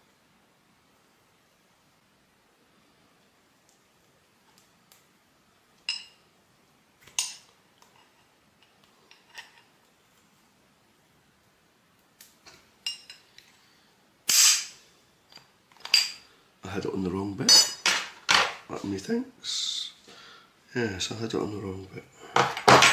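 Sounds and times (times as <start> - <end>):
metal parts clinking on a workbench: 5.9 - 6.2, 7.2 - 9.7, 12.8 - 13.3, 15.3 - 16.2, 17.5 - 18.6, 22.4 - 22.9.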